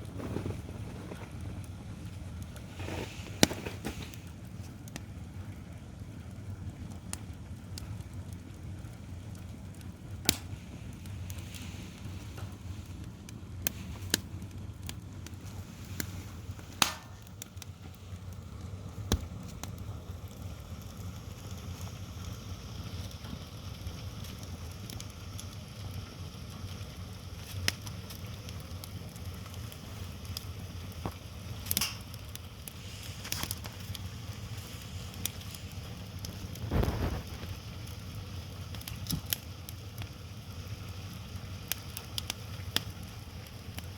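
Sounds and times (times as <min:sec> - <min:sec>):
low rumble of fire: 0:00.0 - 0:43.9
wood fire crackling and popping: 0:00.0 - 0:43.9.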